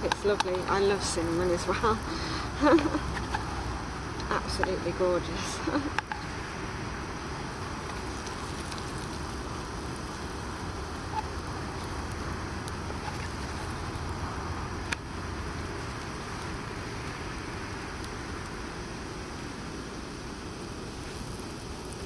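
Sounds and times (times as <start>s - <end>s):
bread sizzling in a frying pan: 0.0s - 22.0s.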